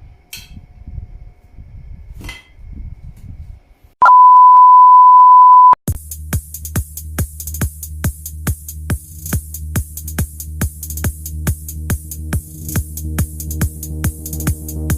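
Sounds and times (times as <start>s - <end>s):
steady electronic beep: 4.0s - 5.8s
electronic dance music: 12.8s - 14.9s.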